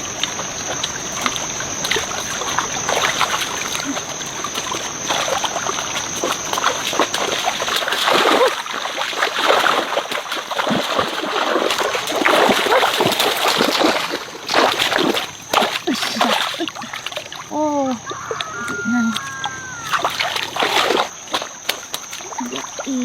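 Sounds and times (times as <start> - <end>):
water splashing and sloshing: 0.0 - 23.0
high-pitched whine: 17.4 - 23.0.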